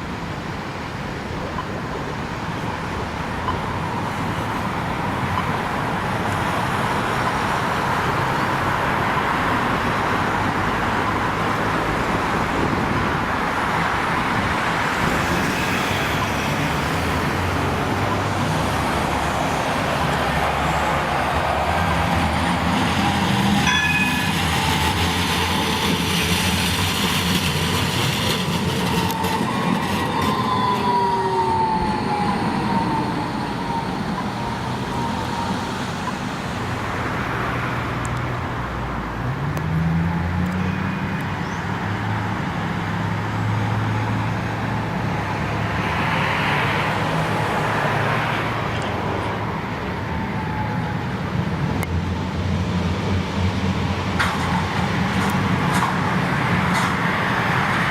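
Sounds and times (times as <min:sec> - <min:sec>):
tram wheels rumbling on rails: 0:00.0 - 0:39.6, 0:40.3 - 0:57.9
tram low hum: 0:00.0 - 0:45.8
tram falling whine: 0:15.1 - 0:37.8.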